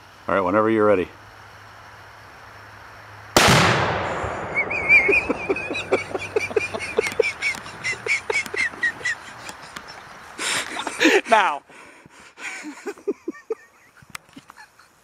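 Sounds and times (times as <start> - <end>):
rifle shot with echo: 3.4 - 5.5
short squawking calls: 4.5 - 10.8.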